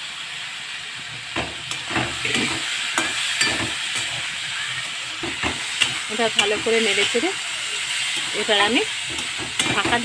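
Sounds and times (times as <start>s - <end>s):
vegetables sizzling in oil: 0.0s - 10.0s
spatula scraping a pan: 1.4s - 10.0s.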